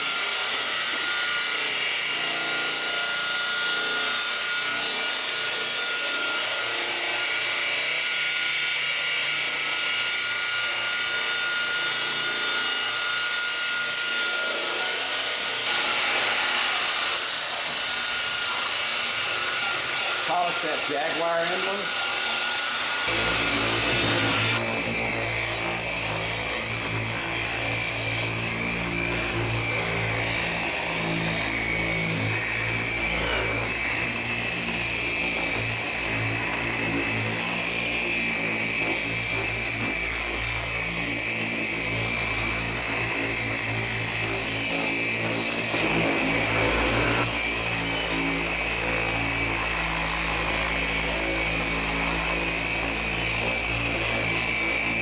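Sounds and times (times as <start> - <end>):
electric polisher running: 0.0 - 55.0.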